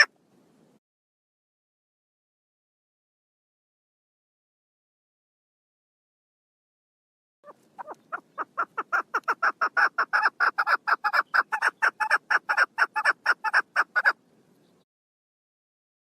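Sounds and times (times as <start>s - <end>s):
partridge calling: 7.4s - 14.8s.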